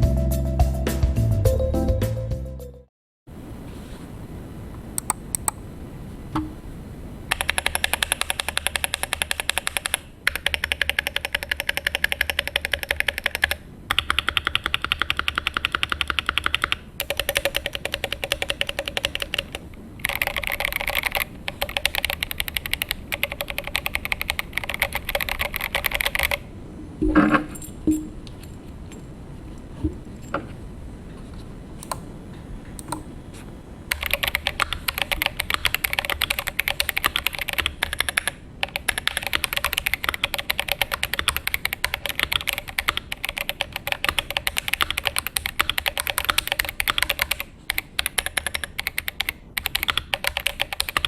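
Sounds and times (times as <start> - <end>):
mechanical keyboard typing: 7.3 - 26.4, 33.9 - 51.0.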